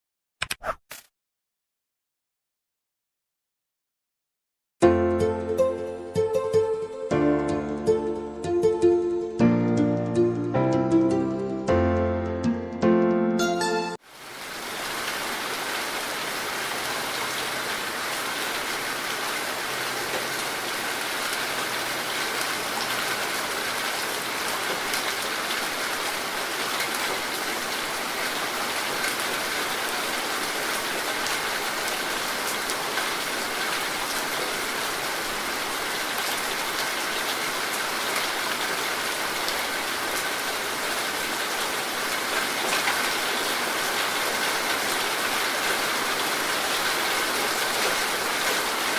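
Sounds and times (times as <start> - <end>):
heavy rain hissing: 14.1 - 48.9.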